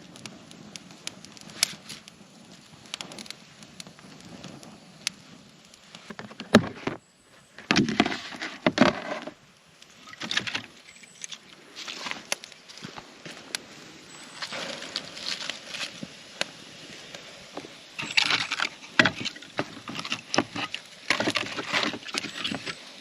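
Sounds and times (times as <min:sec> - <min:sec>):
campfire crackling: 0:00.0 - 0:23.0
rustling and clattering handling noise: 0:05.9 - 0:09.4, 0:17.6 - 0:22.9.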